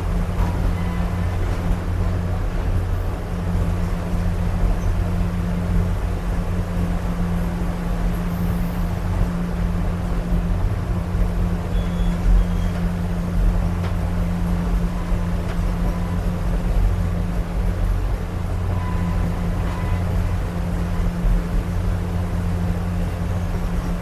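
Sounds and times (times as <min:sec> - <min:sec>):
train running gear rumble: 0:00.0 - 0:24.0.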